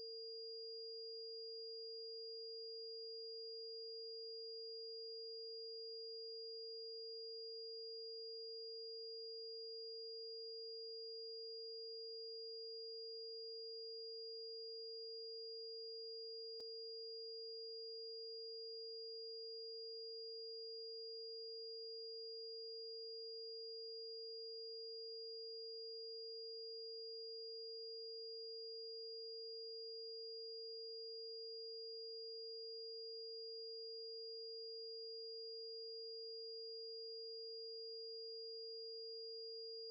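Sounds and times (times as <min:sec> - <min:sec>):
low electronic sine tone: 0:00.0 - 0:39.9.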